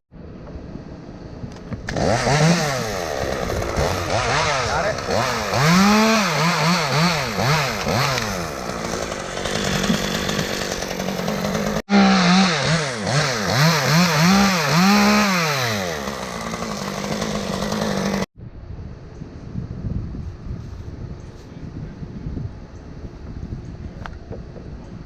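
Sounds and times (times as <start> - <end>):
chainsaw engine revving: 1.8 - 18.3
wind noise: 18.4 - 25.0.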